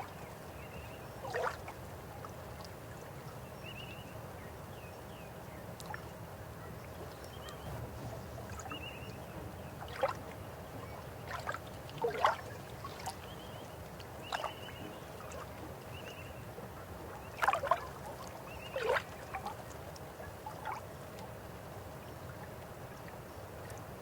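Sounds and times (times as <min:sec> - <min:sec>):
water gurgles and splashes: 0:01.2 - 0:01.8, 0:09.6 - 0:15.9, 0:16.8 - 0:21.2
river water flowing: 0:06.9 - 0:24.0.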